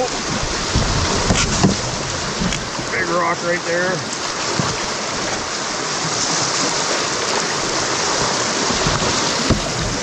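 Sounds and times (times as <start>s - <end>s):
river rapid rushing: 0.0s - 10.0s
low thump: 0.6s - 2.9s, 8.7s - 10.0s.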